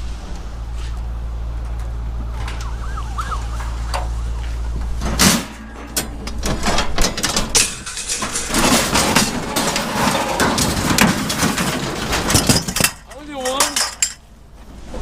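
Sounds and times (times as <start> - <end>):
metal knocks and clanks: 3.5 - 14.2.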